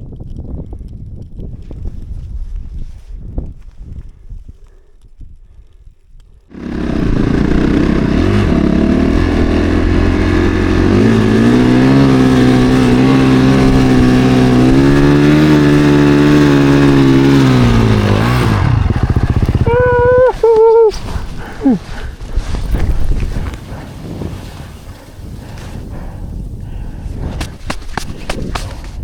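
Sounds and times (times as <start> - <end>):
dirt bike engine revving: 6.5 - 21.8.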